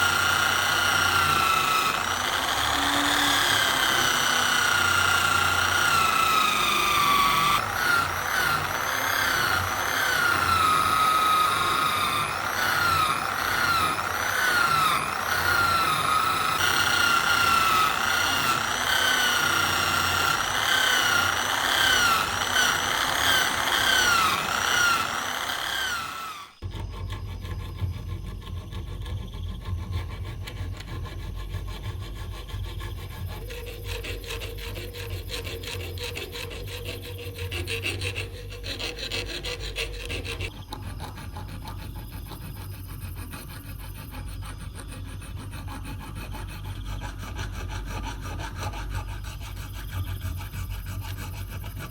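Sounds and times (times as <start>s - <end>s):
power tool motor whining: 0.0s - 26.7s.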